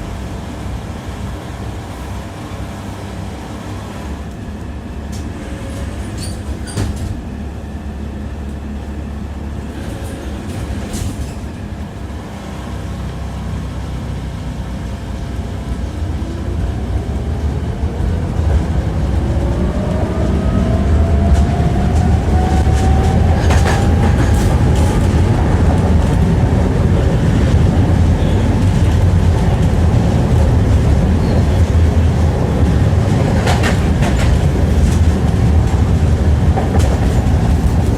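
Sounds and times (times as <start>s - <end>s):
tram motor whine: 0.0s - 37.9s
tram running rumble: 0.0s - 37.9s
wheels clicking over rail joints: 20.6s - 37.9s.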